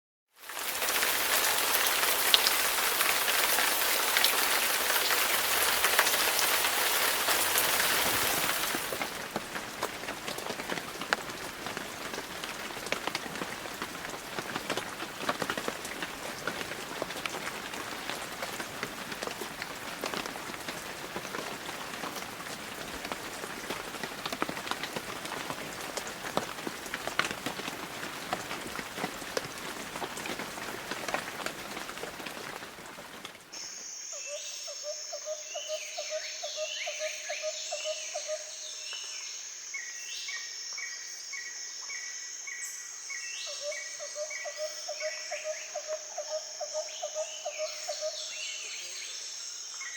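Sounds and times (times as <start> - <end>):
rain falling: 0.3 - 33.8.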